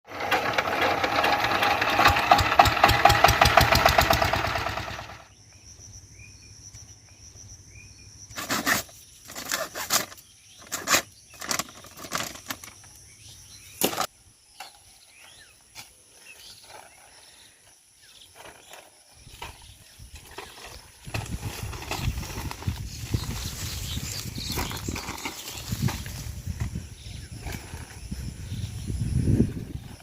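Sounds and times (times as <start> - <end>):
small engine running loudly: 0.1 - 5.3.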